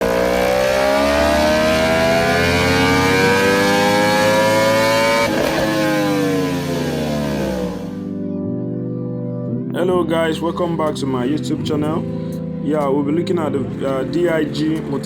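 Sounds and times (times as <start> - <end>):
vehicle engine revving: 0.0 - 8.1.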